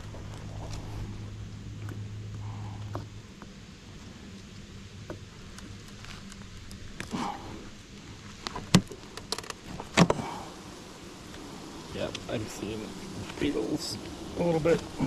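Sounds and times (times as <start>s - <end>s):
honeybees humming: 0.0s - 15.0s.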